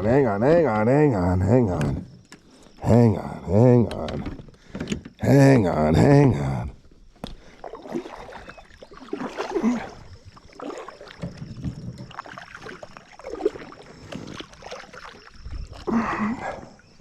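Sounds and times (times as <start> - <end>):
water splashing around kayak: 3.7 - 17.0.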